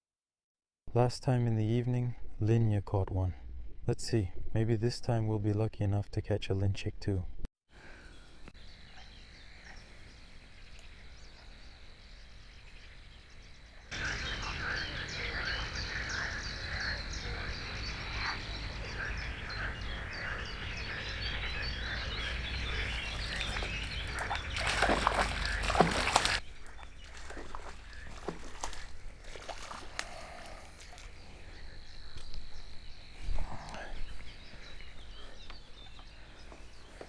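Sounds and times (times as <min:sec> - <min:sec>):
chorus of frogs croaking: 0:08.7 - 0:37.0.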